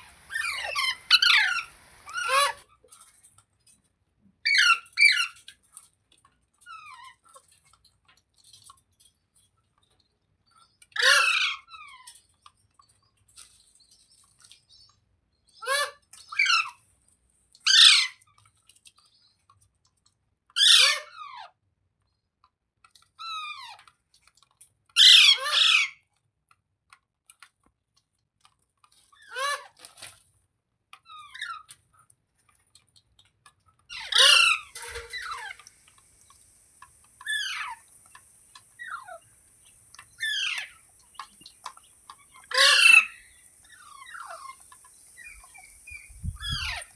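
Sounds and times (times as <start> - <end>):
parrot screeching: 0.3 - 2.6, 11.0 - 11.7, 17.7 - 18.2, 20.6 - 21.4, 25.0 - 26.0, 33.9 - 35.7, 37.2 - 37.9, 40.2 - 40.8, 42.3 - 44.6, 46.4 - 46.9.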